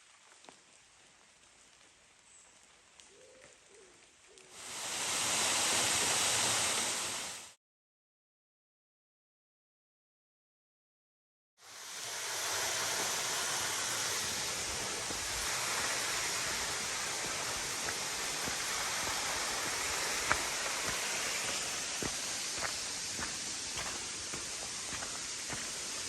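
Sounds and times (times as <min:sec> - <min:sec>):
waterfall rushing: 0:04.6 - 0:07.6, 0:11.7 - 0:26.0.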